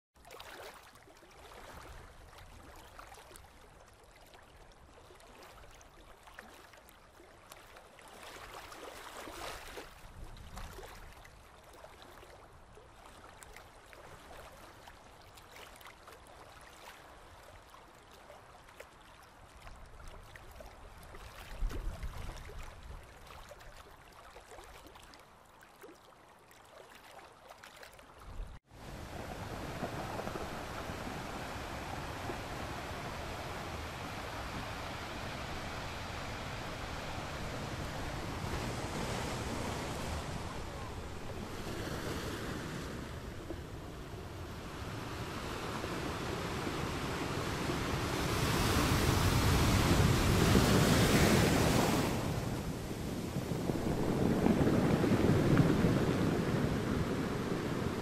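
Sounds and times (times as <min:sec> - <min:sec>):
faint steady rushing noise: 0:28.7 - 0:58.0.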